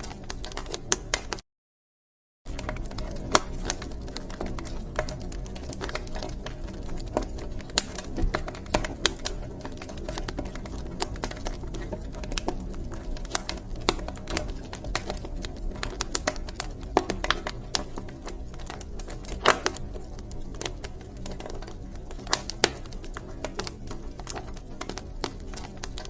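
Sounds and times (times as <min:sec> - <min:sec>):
low rumble of burning: 0:00.0 - 0:01.4, 0:02.5 - 0:26.0
wood fire crackling: 0:00.0 - 0:01.4, 0:02.5 - 0:26.0.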